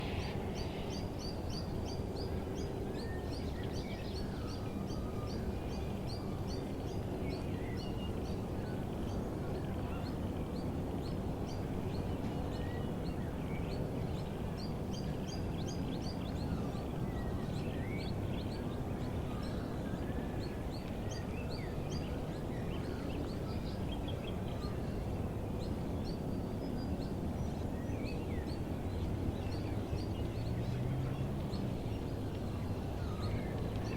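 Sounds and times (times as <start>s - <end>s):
steady low background rumble: 0.0s - 3.6s.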